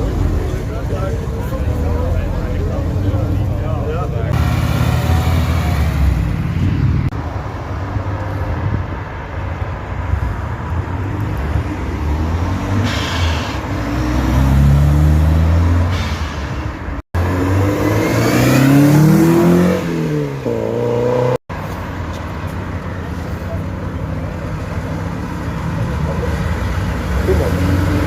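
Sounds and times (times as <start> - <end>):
car engine revving: 17.2 - 21.4.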